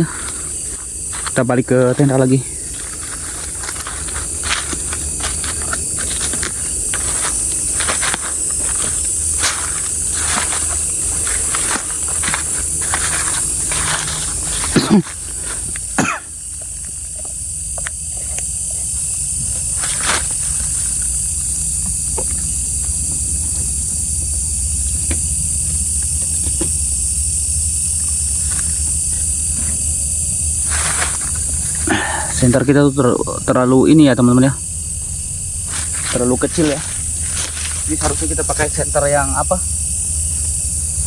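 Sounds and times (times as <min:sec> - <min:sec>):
crickets chirring: 0:00.0 - 0:41.0
footsteps crunching through dry leaves: 0:00.6 - 0:16.8, 0:18.9 - 0:22.4, 0:27.8 - 0:32.6, 0:35.1 - 0:40.0
person coughing: 0:14.7 - 0:15.2, 0:15.9 - 0:16.4.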